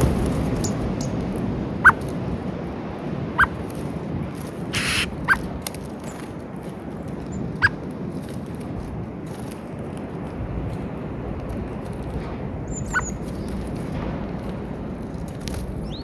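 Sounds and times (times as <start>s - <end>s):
steady outdoor hiss: 0.0s - 16.0s
birds giving squeaky calls: 1.8s - 2.0s, 3.4s - 3.6s, 4.7s - 5.5s, 12.7s - 13.4s.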